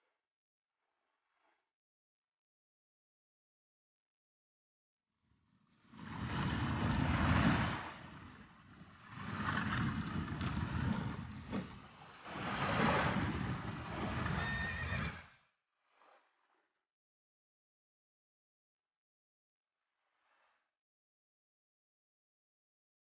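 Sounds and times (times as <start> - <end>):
rushing water: 5.8 - 15.3
horses neighing: 14.2 - 15.2.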